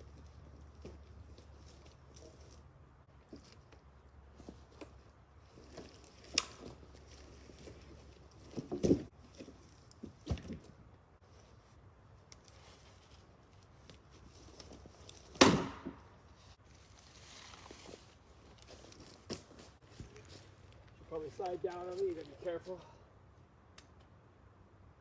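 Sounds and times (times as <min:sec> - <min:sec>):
branches rustling: 0:00.0 - 0:23.0
footsteps on brush: 0:16.4 - 0:22.7.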